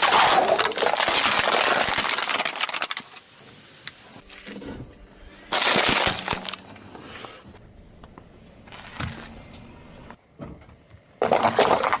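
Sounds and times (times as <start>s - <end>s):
car tyre crushing object: 5.5s - 6.8s.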